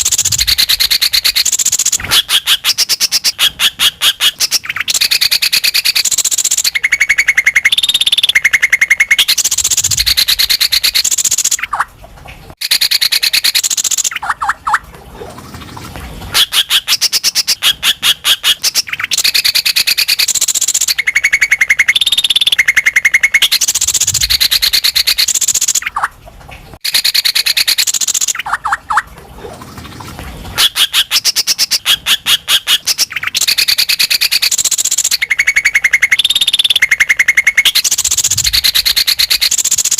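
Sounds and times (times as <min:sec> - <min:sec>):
bird singing fast trills: 0:00.0 - 0:11.8, 0:12.6 - 0:14.8, 0:18.4 - 0:26.0, 0:32.8 - 0:39.9.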